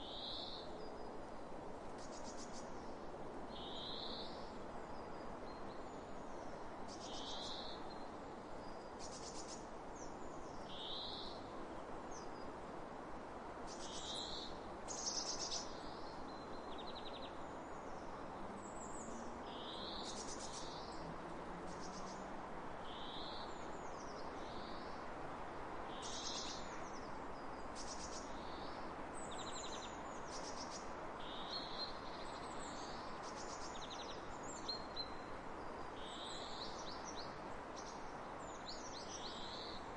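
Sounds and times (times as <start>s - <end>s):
wind across fields: 0.0s - 39.9s.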